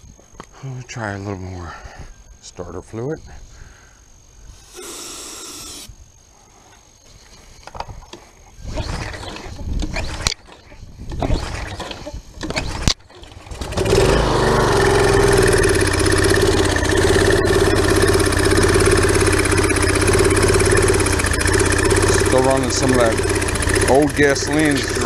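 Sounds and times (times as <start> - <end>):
small engine cranking and running: 4.6 - 5.9, 11.2 - 25.0.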